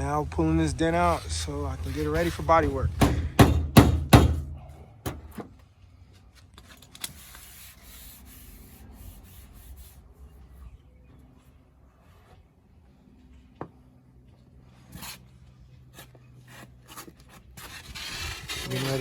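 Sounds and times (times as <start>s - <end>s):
rubbing and scraping on bodywork: 0.8s - 4.5s, 6.0s - 10.6s, 14.6s - 19.0s
knocks on car body panel: 3.0s - 4.5s.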